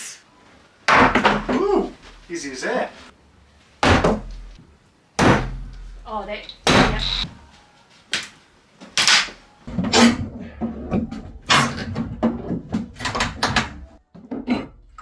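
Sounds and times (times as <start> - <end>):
wooden parts knocking and clattering: 0.9 - 2.3.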